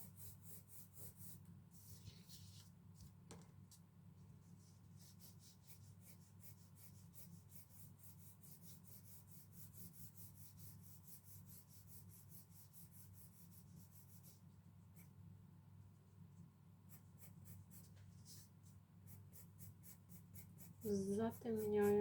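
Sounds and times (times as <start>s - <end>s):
pencil shading on paper: 0.0s - 2.0s, 4.9s - 15.2s, 16.8s - 22.0s.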